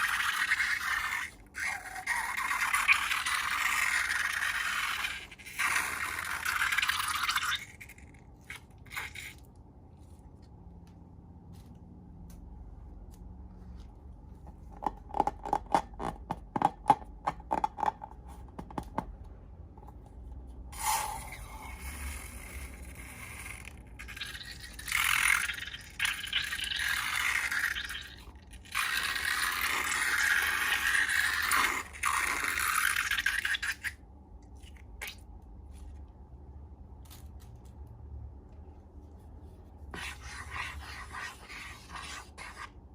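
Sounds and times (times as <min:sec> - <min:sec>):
slime scraping squelch: 0:00.0 - 0:10.6, 0:20.8 - 0:37.7, 0:38.6 - 0:42.9.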